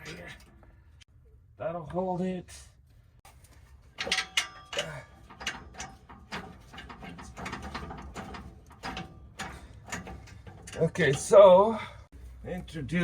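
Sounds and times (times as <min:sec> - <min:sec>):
metallic clicks and rattles: 0:03.9 - 0:11.6.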